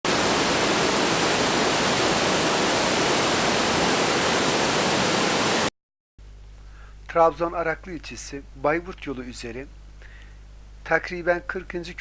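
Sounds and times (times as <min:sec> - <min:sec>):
waterfall rushing: 0:00.1 - 0:05.7.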